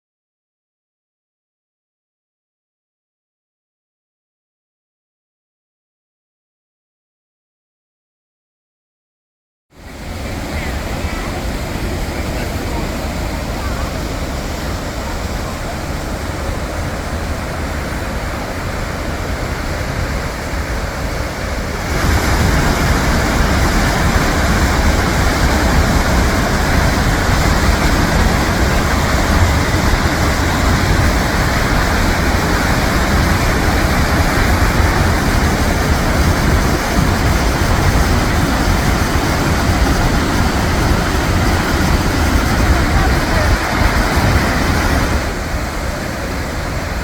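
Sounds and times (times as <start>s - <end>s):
waterfall rushing: 9.8s - 47.0s.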